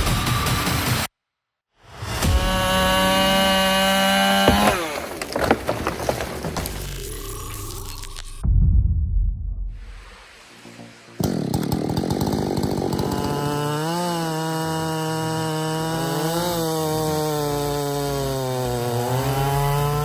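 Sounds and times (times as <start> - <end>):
chainsaw running at high revs: 2.2 - 5.1, 11.2 - 20.0.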